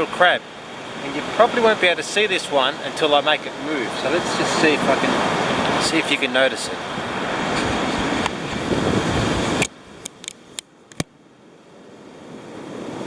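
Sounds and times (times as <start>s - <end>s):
wind and surf rushing: 0.0s - 13.0s
sharp clicks: 9.6s - 11.1s.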